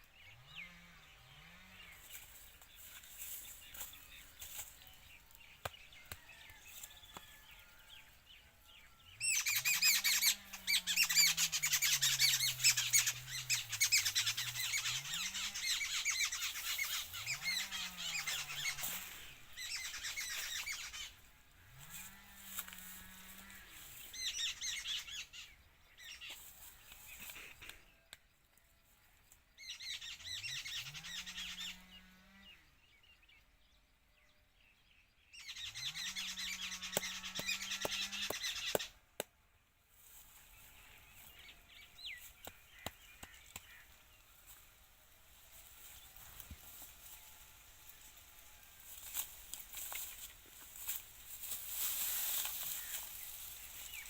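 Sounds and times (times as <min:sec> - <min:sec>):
small birds chirping and squawking: 0:00.0 - 0:28.2, 0:29.3 - 0:33.1, 0:35.2 - 0:39.0, 0:40.0 - 0:54.0.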